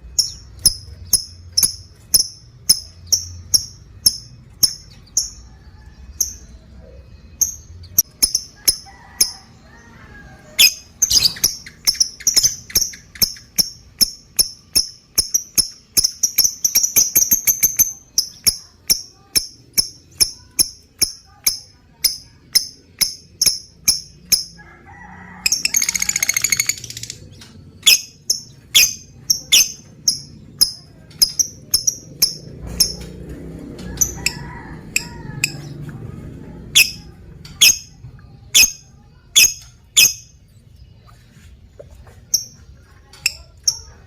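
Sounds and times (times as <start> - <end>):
lovebird chirping: 0.0 - 9.3, 10.5 - 24.6, 25.5 - 33.0, 36.7 - 41.4
rapid rattling bird chatter: 10.6 - 35.8.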